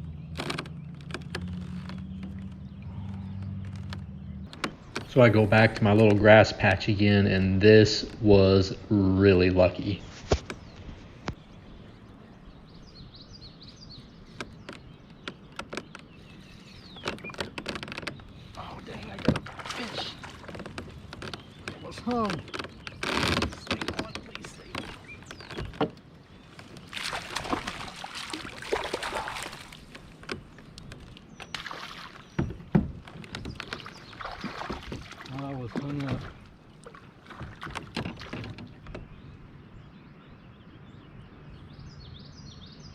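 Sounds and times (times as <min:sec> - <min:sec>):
outdoor background noise: 0:00.0 - 0:42.9
small knocks and clicks: 0:00.3 - 0:05.2, 0:14.3 - 0:16.2, 0:16.8 - 0:19.5, 0:20.4 - 0:27.8, 0:29.8 - 0:31.6, 0:32.2 - 0:36.3, 0:37.3 - 0:39.1
water splashing: 0:16.2 - 0:39.0.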